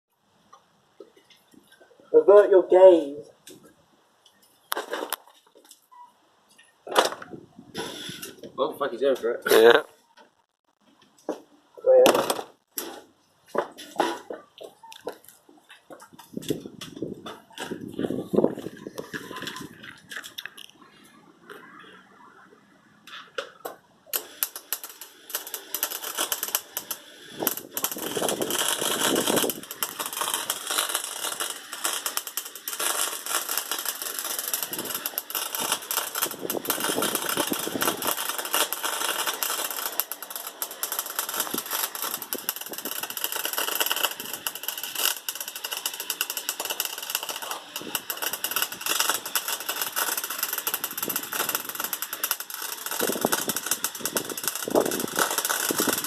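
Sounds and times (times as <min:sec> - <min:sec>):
welder arc crackling: 0:24.1 - 0:56.0.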